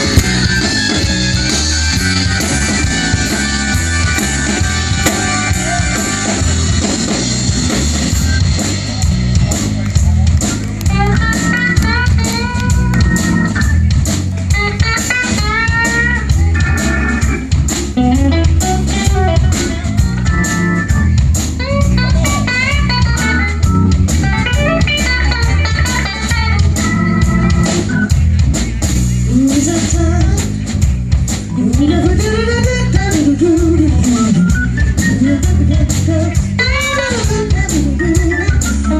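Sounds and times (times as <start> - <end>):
lead guitar solo: 0.0 - 7.1, 10.7 - 13.8, 14.5 - 28.2
bass: 0.0 - 38.9
steady drum beat: 0.0 - 38.9.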